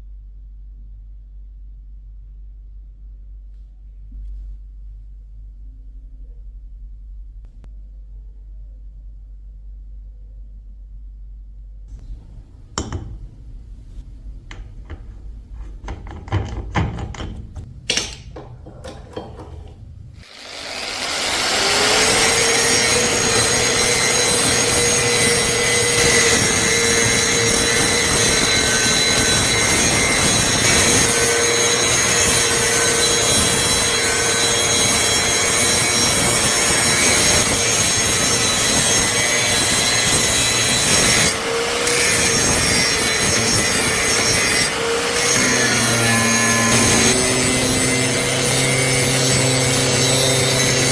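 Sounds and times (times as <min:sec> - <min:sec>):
handling clicks and knocks: 0:12.0 - 0:20.2
power tool grinding metal: 0:12.0 - 0:50.9.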